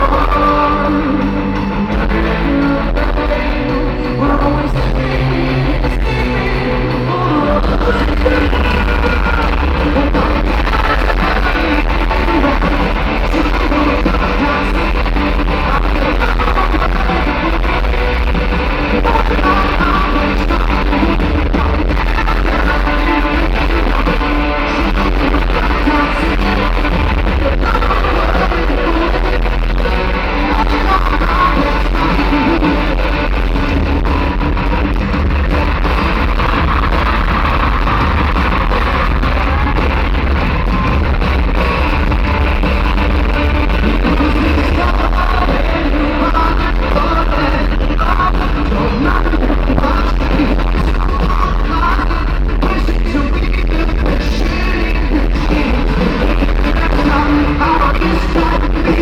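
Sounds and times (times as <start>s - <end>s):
live rock band: 0.0s - 59.0s
person singing: 0.0s - 59.0s.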